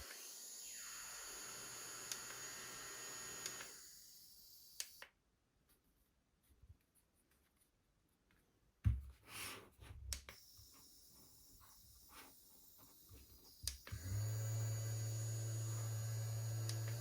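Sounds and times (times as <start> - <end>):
mini fan running and spinning down: 0.0 - 4.0, 13.6 - 17.0.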